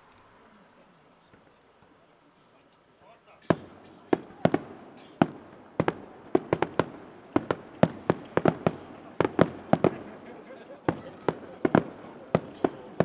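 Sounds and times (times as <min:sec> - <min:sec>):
fireworks shells bursting: 0:03.4 - 0:13.0.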